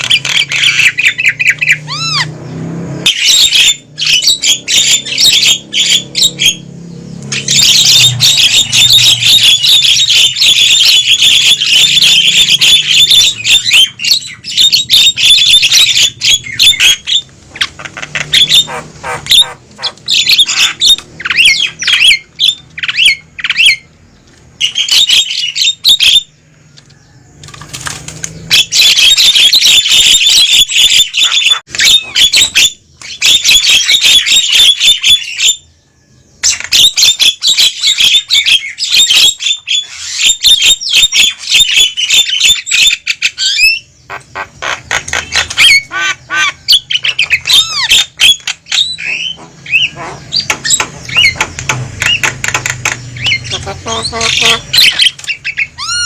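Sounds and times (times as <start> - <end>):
mynas chattering and squawking: 0.0 - 2.4, 7.3 - 23.9, 36.4 - 56.0.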